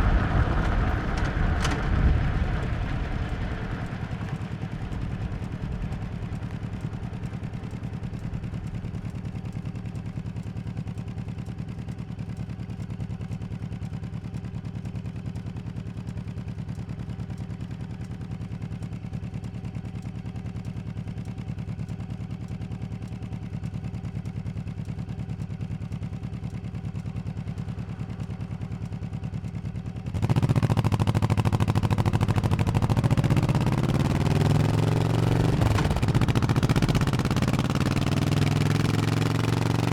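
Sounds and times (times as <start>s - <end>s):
motorcycle engine accelerating: 0.0s - 11.6s, 25.6s - 39.9s.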